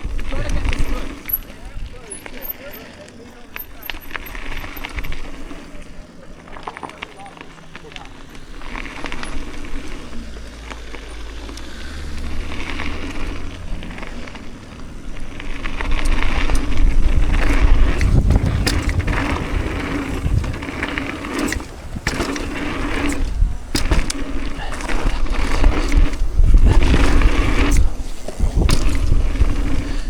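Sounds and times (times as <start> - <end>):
wind rumbling on microphone: 0.0 - 2.1, 8.6 - 30.0
crunching and clicks: 0.0 - 30.0
mountain bike rolling on rough track: 0.0 - 30.0.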